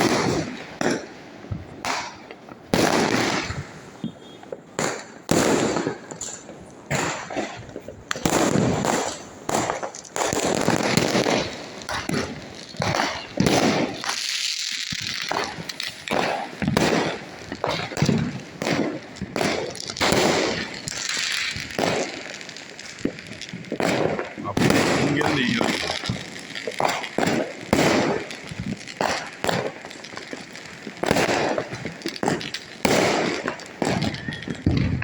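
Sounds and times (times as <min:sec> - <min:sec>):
firecrackers banging and crackling: 0:00.0 - 0:35.0
fireworks hissing: 0:00.0 - 0:35.0.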